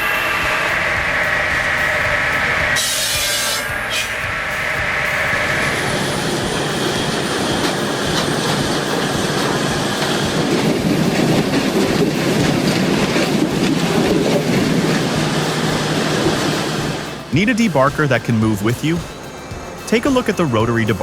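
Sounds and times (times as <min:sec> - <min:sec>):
heavy machine rumbling and clattering: 0:04.8 - 0:17.4.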